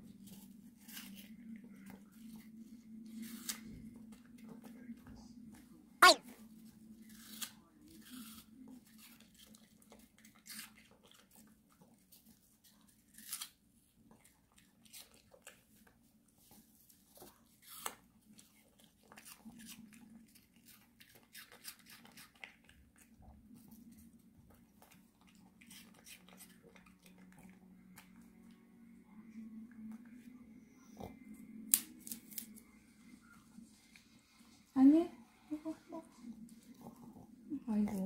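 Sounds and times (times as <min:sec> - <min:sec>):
dog crunching vegetables: 0:00.1 - 0:04.8, 0:07.0 - 0:28.6
faint low hum: 0:22.6 - 0:38.0.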